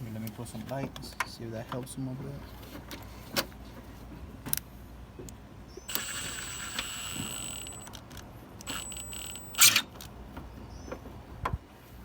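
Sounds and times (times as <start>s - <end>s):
power driver motor whining: 5.9s - 8.0s, 8.6s - 10.0s.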